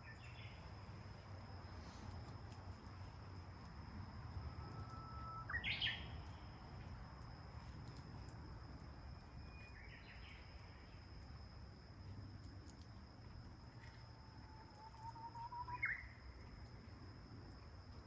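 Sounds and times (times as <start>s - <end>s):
high insect trill: 0.0s - 18.0s.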